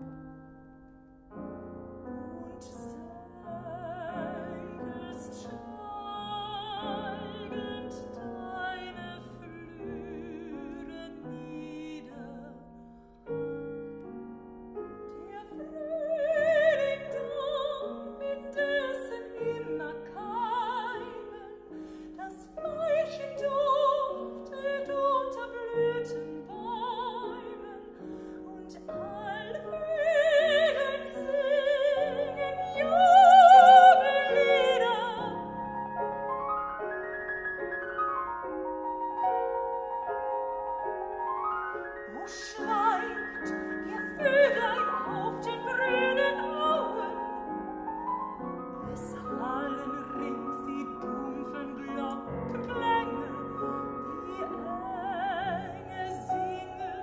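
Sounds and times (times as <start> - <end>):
piano accompaniment: 0.0 - 57.0
person singing with vibrato: 15.2 - 35.7, 42.1 - 47.4, 48.8 - 57.0.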